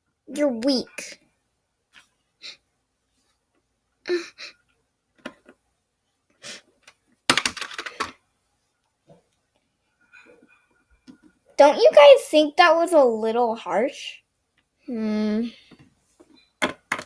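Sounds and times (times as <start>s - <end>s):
plastic toys clicking and knocking: 5.2s - 5.6s, 6.8s - 8.2s, 16.6s - 17.0s
plastic toys rattling clatter: 7.3s - 8.2s.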